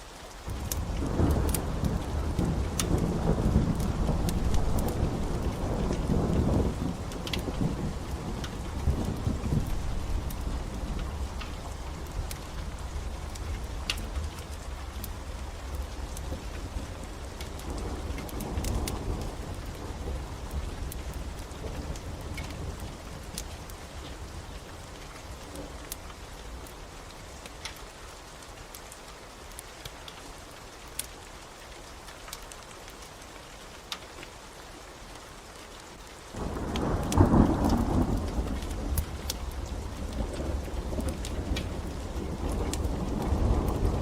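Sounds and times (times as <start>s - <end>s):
wood fire crackling: 0.0s - 34.4s, 35.0s - 44.0s
steady rain: 0.0s - 44.0s
thunder rumbling: 0.5s - 24.4s, 36.4s - 44.0s.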